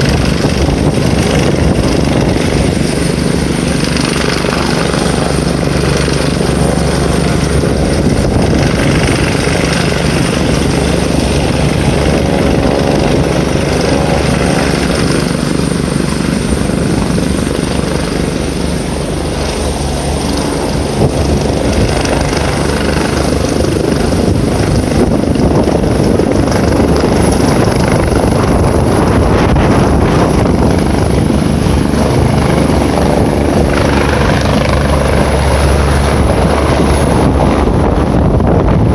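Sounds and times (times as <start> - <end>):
helicopter rotor beat: 0.0 - 38.9
turbine whine: 0.0 - 38.9.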